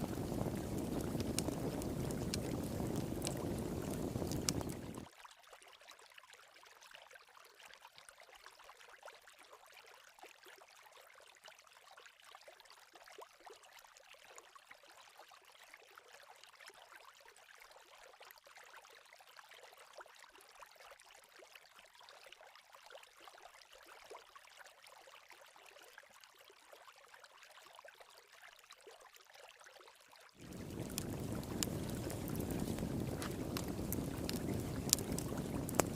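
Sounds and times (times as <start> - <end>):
water rushing: 0.0 - 5.0, 30.4 - 35.9
water trickling: 0.0 - 5.1, 30.4 - 35.9.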